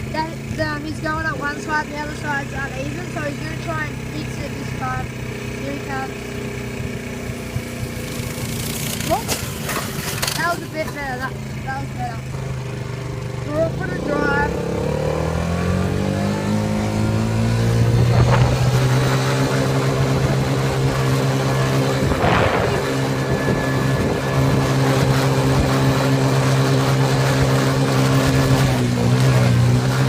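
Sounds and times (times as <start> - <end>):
off-road vehicle engine running: 0.0 - 30.0
vehicle jolt: 13.3 - 30.0.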